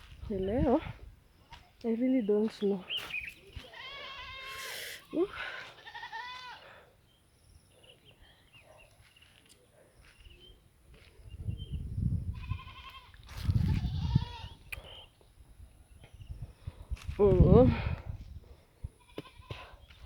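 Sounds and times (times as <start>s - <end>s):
farm animal bleating: 3.5s - 6.8s, 12.3s - 14.6s, 19.0s - 19.7s
faint chirps: 6.7s - 11.8s, 14.6s - 16.6s.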